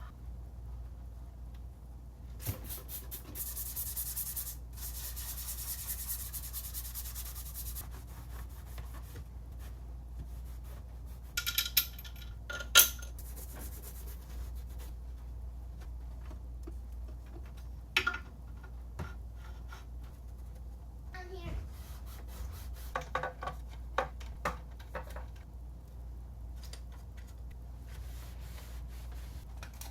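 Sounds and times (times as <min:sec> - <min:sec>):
rubbing and scrubbing: 0:02.5 - 0:11.4, 0:13.2 - 0:15.0, 0:27.9 - 0:29.5.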